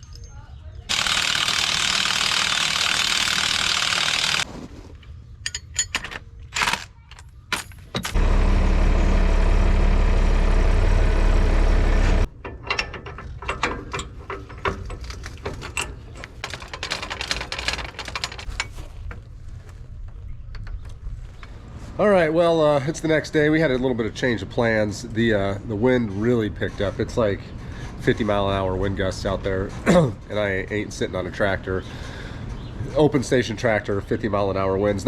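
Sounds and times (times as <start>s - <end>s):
ratchet clicking: 0.9s - 4.4s.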